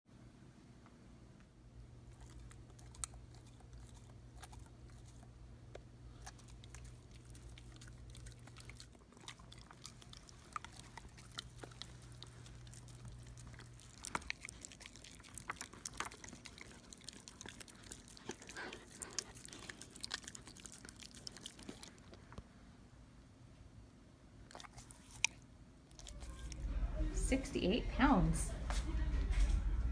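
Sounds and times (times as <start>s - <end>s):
low steady hum: 0.1s - 29.9s
dog chewing food: 1.9s - 22.4s, 24.5s - 27.2s.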